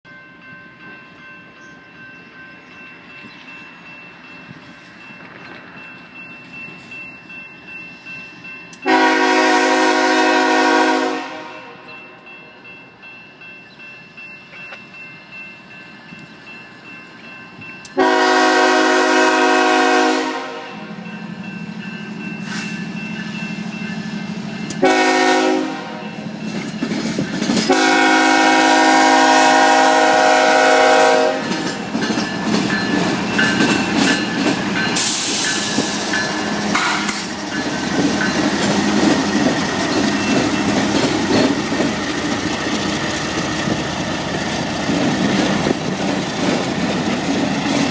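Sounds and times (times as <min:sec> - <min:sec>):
locomotive engine droning: 0:00.7 - 0:47.9
locomotive horn: 0:08.8 - 0:11.9, 0:17.9 - 0:21.0, 0:24.8 - 0:26.3, 0:27.7 - 0:31.8
train wheel clatter: 0:26.3 - 0:28.2, 0:31.0 - 0:47.9.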